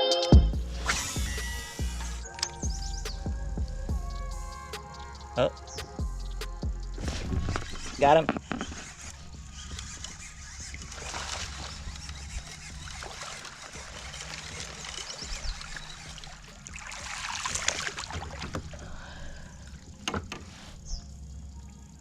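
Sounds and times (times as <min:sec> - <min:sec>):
water splashing against kayak: 0:07.2 - 0:20.9.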